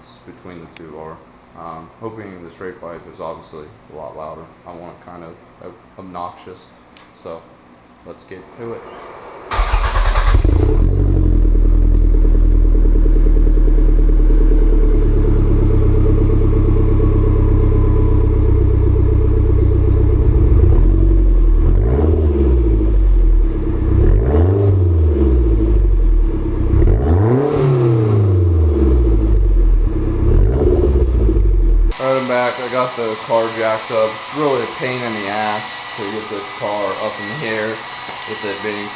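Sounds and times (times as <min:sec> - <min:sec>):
car engine idling and revving: 0:09.5 - 0:32.0.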